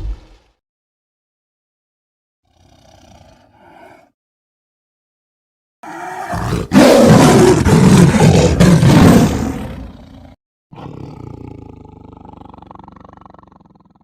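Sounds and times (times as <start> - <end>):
low pulsing tiger growl: 2.5 - 4.1, 5.8 - 14.0
tiger roaring: 2.5 - 4.1, 5.8 - 14.0.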